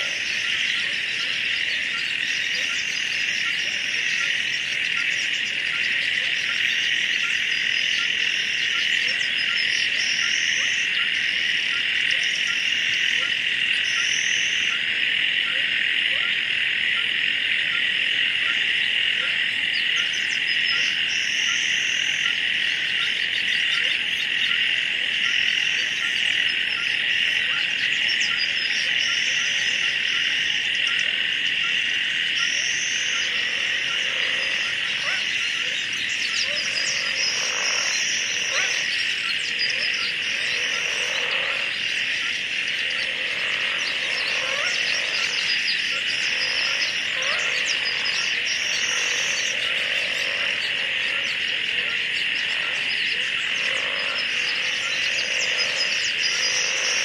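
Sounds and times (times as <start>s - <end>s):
frogs croaking: 0.0s - 57.0s
insects chorus: 0.0s - 57.0s.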